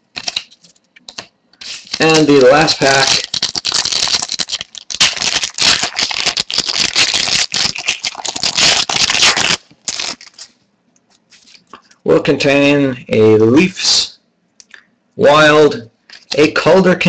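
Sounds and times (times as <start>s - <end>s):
wrapper tearing and crinkling: 0.0s - 10.6s
cards being handled: 0.1s - 11.8s.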